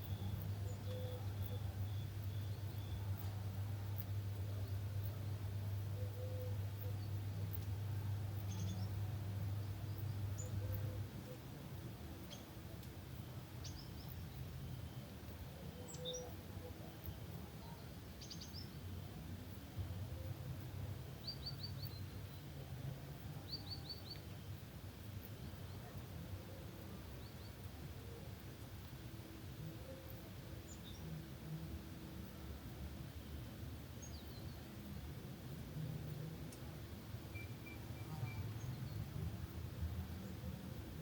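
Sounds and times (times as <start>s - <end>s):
low steady hum: 0.0s - 41.0s
small birds chirping: 13.5s - 16.4s, 17.0s - 18.9s.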